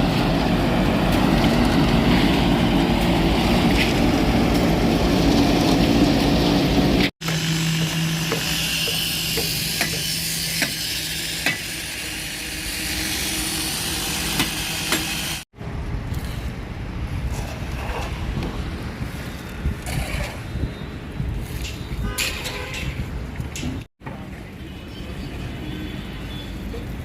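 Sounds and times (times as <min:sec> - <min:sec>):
concrete pump running: 0:00.3 - 0:15.4.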